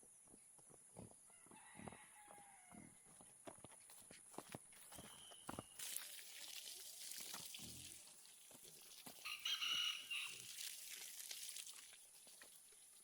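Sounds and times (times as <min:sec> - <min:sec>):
rooster crowing: 0:01.3 - 0:03.0, 0:09.2 - 0:10.4.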